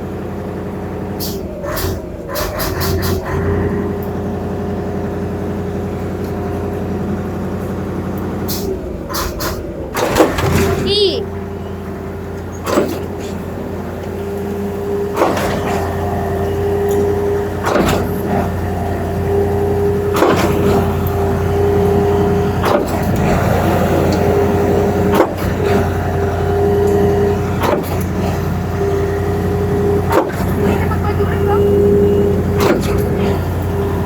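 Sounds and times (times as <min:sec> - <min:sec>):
pump truck engine drone: 0:00.0 - 0:34.0
pumping cylinders clunking: 0:12.3 - 0:34.0.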